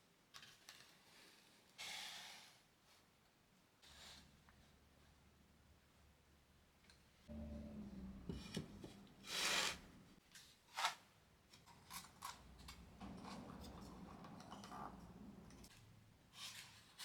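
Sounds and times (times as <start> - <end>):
short scrape: 8.3 - 10.2.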